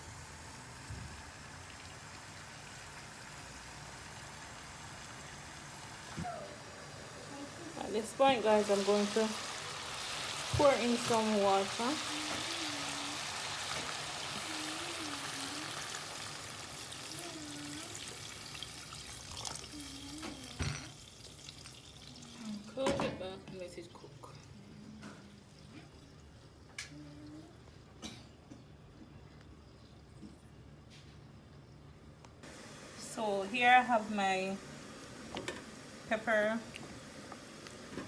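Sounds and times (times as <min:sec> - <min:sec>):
water pouring into a pot: 0:00.1 - 0:22.9.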